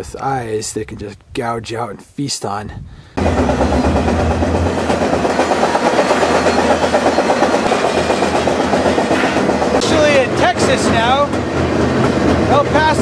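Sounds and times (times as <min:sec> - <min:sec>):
freight train wheels on rails: 0:03.2 - 0:13.0.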